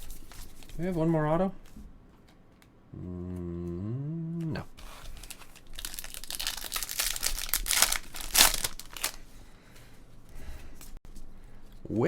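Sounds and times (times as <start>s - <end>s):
wrapper crinkling and tearing: 4.8s - 9.2s.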